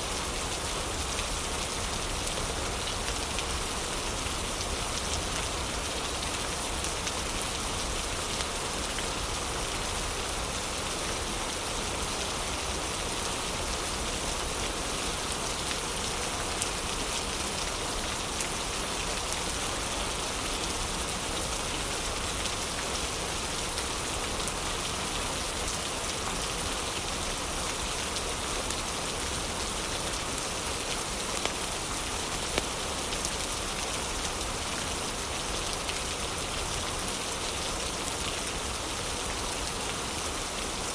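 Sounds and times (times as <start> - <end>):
heavy rain: 0.0 - 40.9
fireplace fire crackles: 30.8 - 31.8.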